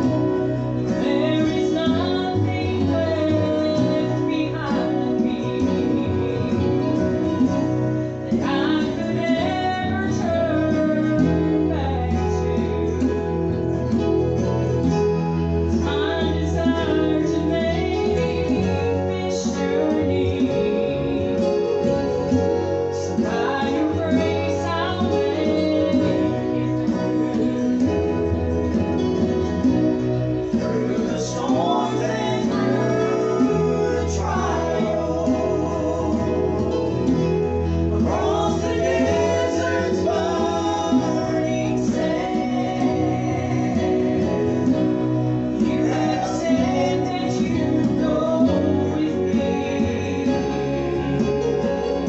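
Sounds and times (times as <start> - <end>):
gospel group singing: 0.0 - 52.0
strummed guitar and bass: 0.0 - 52.0.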